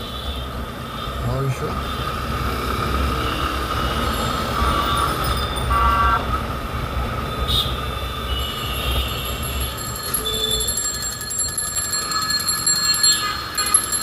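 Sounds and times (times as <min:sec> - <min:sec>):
engine rumble and road noise: 0:00.0 - 0:14.0
vehicle horn tooting: 0:04.5 - 0:06.4.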